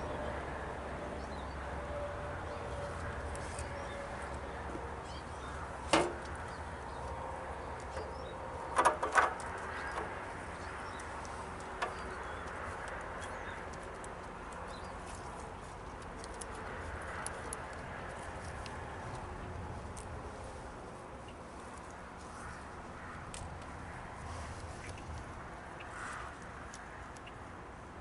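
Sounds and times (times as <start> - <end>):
sharp clicks and knocks: 5.9 - 6.4, 8.7 - 10.2.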